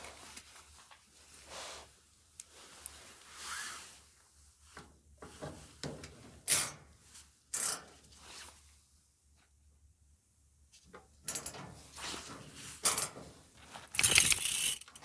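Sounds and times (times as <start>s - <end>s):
rubbing and scraping of parts: 10.8s - 15.0s.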